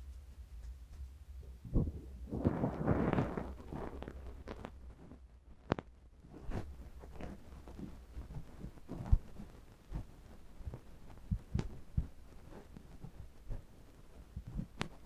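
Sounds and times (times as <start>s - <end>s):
scratching and rustling: 0.0s - 15.0s
light ticks: 7.5s - 15.0s.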